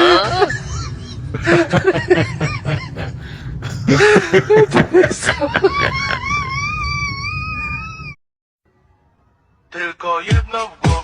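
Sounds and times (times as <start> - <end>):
laughter-like vocal sounds: 0.0 - 6.5.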